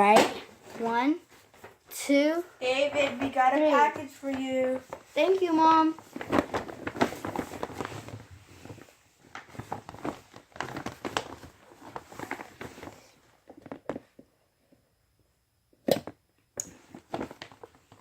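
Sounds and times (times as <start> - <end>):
package rustling and handling: 2.9 - 14.0, 16.8 - 18.0.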